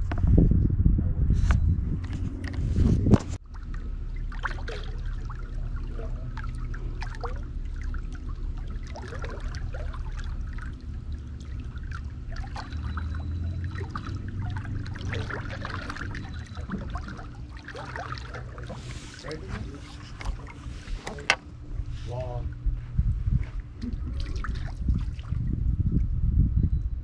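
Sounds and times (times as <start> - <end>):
low hum: 0.0 - 27.0
water lapping against boat: 2.0 - 26.1
small water splashes: 3.4 - 21.4, 23.8 - 25.5.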